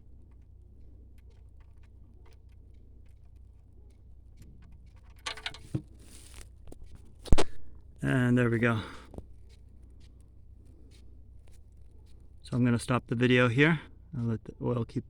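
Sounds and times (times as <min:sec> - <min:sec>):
low steady hum: 0:00.0 - 0:15.0
rustle: 0:04.7 - 0:07.5.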